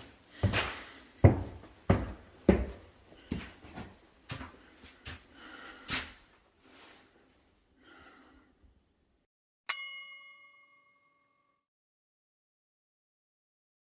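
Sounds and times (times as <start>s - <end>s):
bell-like ding: 9.7s - 11.7s.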